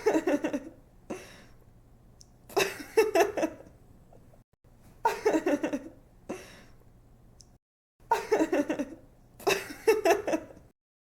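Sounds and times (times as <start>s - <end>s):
woman giggling: 5.1s - 6.0s, 8.1s - 10.6s.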